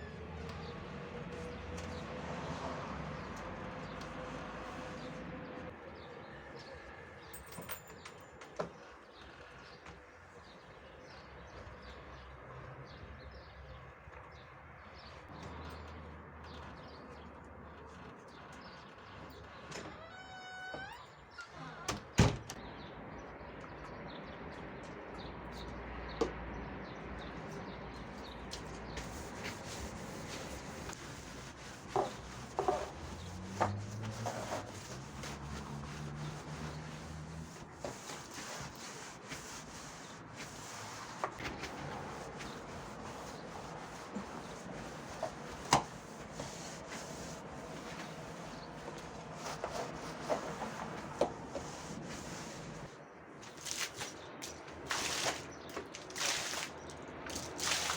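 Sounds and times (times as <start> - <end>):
short squeaks: 19.1 - 21.9.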